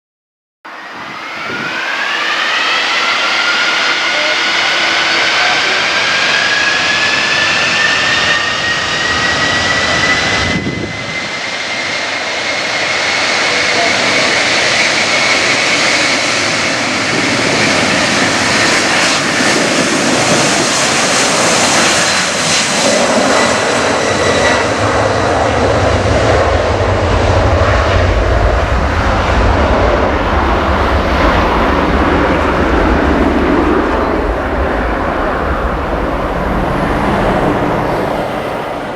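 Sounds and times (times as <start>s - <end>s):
high jet whine: 0.7s - 38.9s
jet engines roaring: 0.7s - 38.9s
deep rumble: 22.8s - 38.9s.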